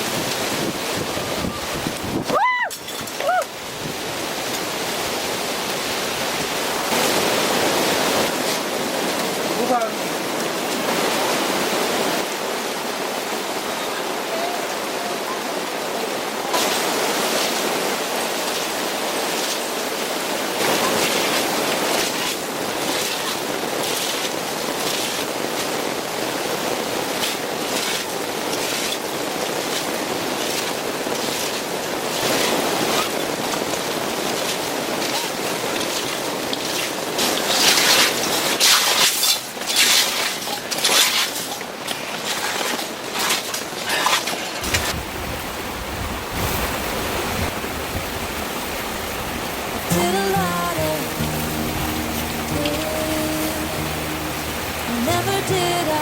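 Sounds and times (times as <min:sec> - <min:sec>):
gusting wind: 0:00.0 - 0:13.6, 0:44.6 - 0:50.0
heavy rain roaring: 0:00.0 - 0:43.9, 0:44.5 - 0:56.0.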